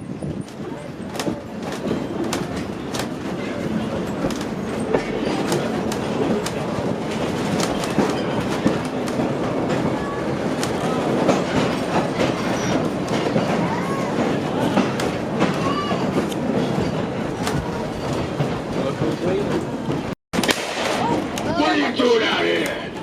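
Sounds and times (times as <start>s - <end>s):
rail clicks and clacks: 0.0s - 23.0s
train wheels rumbling on rails: 0.0s - 23.0s.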